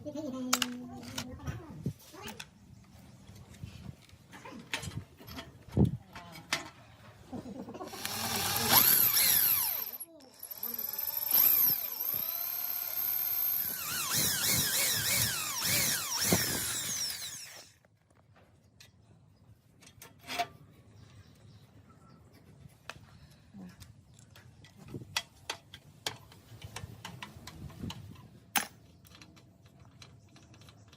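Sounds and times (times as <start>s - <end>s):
handheld power tool running: 7.9s - 17.8s.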